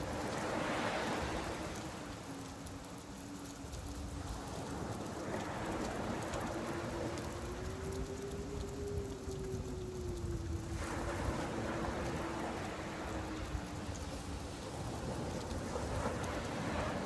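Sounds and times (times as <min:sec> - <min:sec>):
rain falling: 0:00.0 - 0:17.0
waves washing onto beach: 0:00.0 - 0:17.0.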